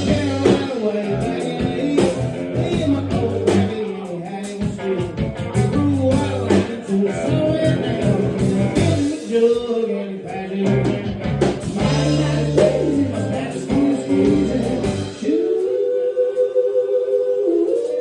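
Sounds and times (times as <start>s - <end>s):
bass guitar: 0.0s - 9.5s, 10.3s - 15.4s
electric guitar: 0.0s - 9.7s, 10.3s - 15.4s
drums with steady beat: 0.0s - 15.8s, 17.7s - 18.0s
person singing: 0.0s - 18.0s.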